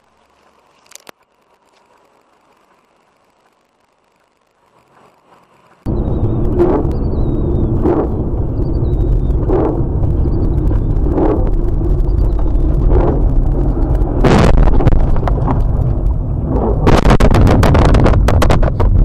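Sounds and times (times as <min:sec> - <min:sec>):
vehicle driving rumble: 0:05.2 - 0:19.0
sharp cracks: 0:05.8 - 0:19.0
loud crunching burst: 0:05.9 - 0:19.0.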